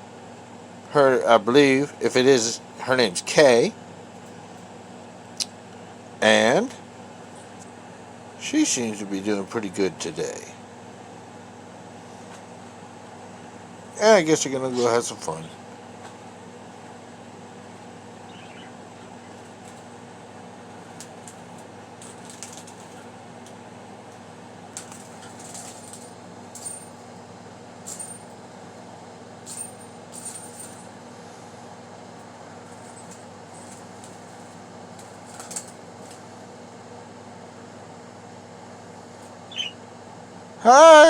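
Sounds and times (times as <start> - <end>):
fan-like hum: 0.0 - 41.0
bird playing with cage beads: 20.8 - 23.1, 24.7 - 27.1, 27.8 - 28.4, 29.4 - 31.0, 32.6 - 36.3.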